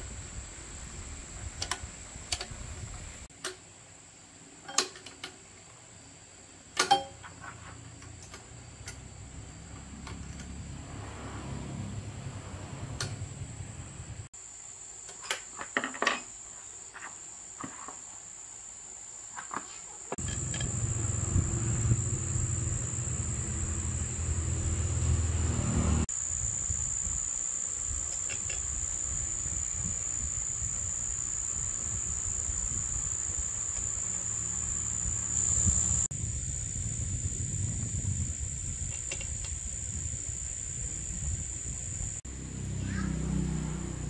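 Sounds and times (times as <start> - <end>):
crickets trilling: 0.0 - 44.0
low engine-like rumble: 9.0 - 14.3, 20.2 - 26.1, 42.0 - 44.0.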